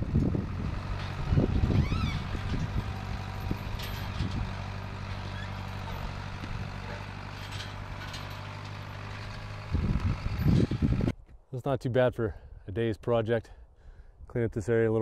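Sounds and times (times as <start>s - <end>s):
backhoe engine idling: 0.0s - 11.1s.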